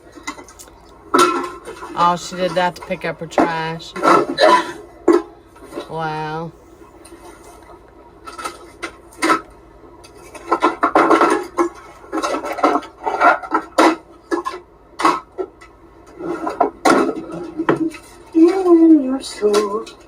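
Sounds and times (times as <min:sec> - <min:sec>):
objects clattering and rustling: 0:00.0 - 0:06.0, 0:07.0 - 0:20.0.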